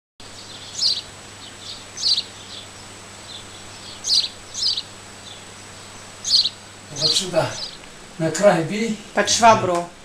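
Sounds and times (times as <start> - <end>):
small bird chirping: 0.2 - 7.9
faint steady hum: 0.2 - 10.0.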